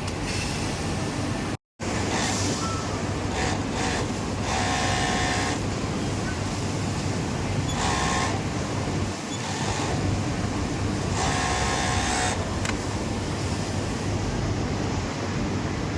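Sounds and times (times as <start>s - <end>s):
machinery humming: 1.8s - 14.7s
industrial sewing machine buzzing: 2.0s - 2.5s, 3.2s - 5.6s, 7.7s - 8.7s, 9.3s - 10.4s, 11.0s - 12.5s.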